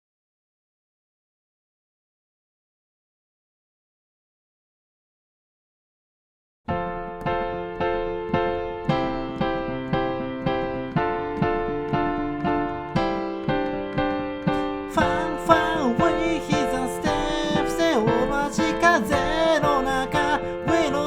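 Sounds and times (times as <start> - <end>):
piano chords: 6.7 - 21.0
person singing: 14.4 - 21.0.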